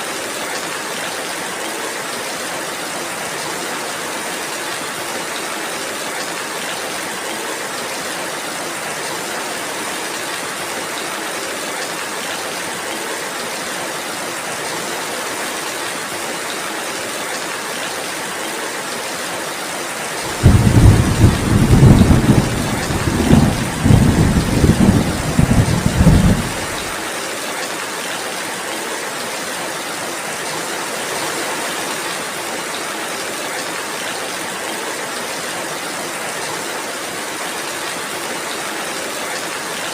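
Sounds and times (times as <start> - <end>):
steady rainfall: 0.0 - 39.9
rolling thunder: 20.3 - 26.9.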